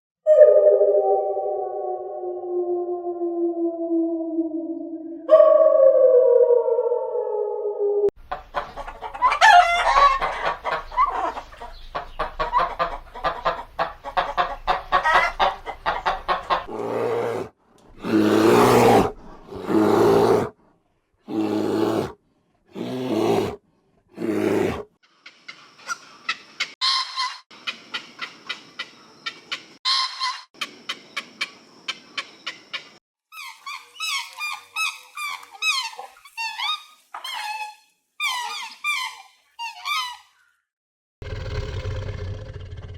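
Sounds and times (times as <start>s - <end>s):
chickens clucking and calling: 8.2s - 16.7s.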